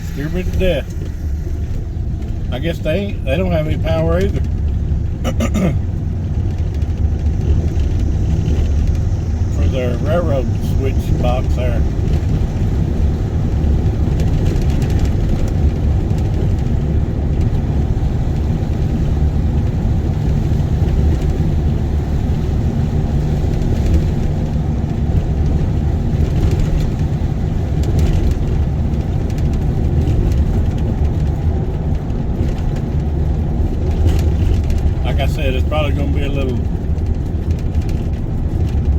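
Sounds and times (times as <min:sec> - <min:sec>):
vehicle cabin road rumble: 0:00.0 - 0:38.9
faint rattles: 0:23.1 - 0:38.9.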